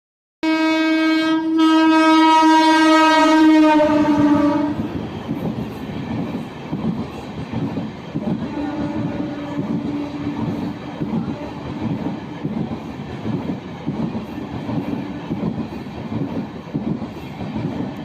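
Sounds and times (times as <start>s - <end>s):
train horn blast: 0.4s - 4.9s, 8.3s - 11.8s
train wheels clattering on rails: 4.2s - 18.0s.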